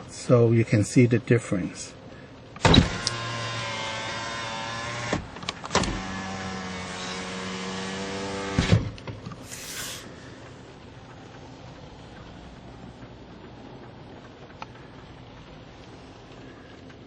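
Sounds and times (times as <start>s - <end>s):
brief hiss: 9.4s - 10.1s.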